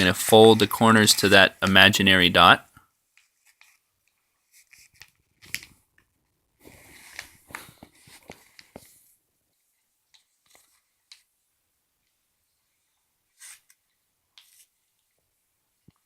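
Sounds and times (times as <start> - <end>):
paper crease rubbing: 13.3 - 13.8.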